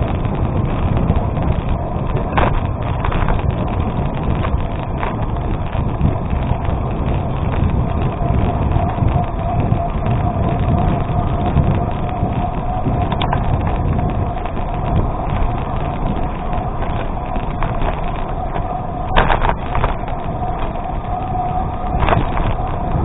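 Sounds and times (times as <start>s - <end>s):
tyres rumbling over gravel: 0.0s - 23.0s
wind buffeting microphone: 0.0s - 23.0s
brief clatter: 17.6s - 20.1s.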